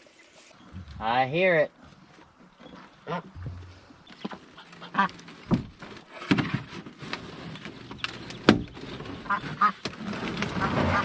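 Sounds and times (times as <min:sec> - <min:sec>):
ducks quacking: 0:03.0 - 0:03.5, 0:04.2 - 0:05.3, 0:09.2 - 0:09.8, 0:10.4 - 0:11.0.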